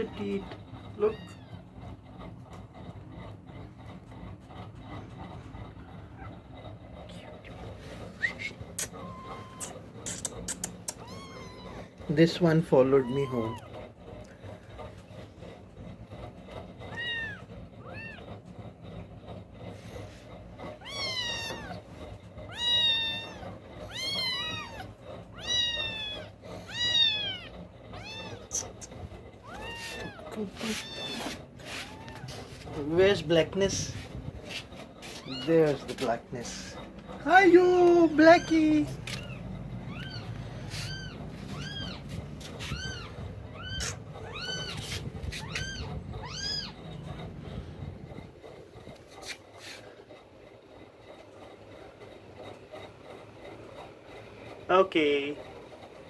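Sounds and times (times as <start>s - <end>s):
kitten meowing: 1.0s - 1.6s, 8.8s - 11.9s, 13.0s - 13.7s, 16.9s - 18.2s, 20.8s - 21.8s, 22.5s - 32.6s, 38.1s - 46.8s.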